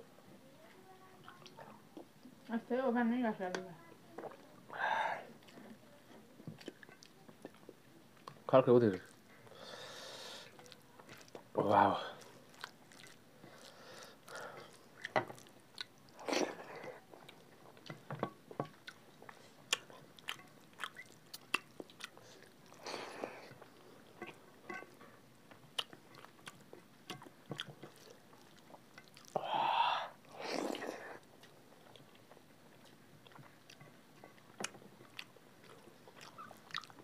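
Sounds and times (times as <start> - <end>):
people chewing: 1.1 - 2.6, 3.5 - 37.0
bowls and fingers clicking on plates: 24.2 - 25.0.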